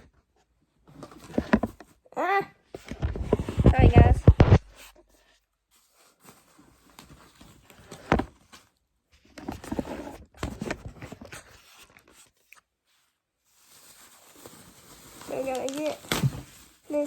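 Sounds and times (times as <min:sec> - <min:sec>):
packaging rustling and scraping: 0:00.8 - 0:02.0, 0:02.7 - 0:17.0.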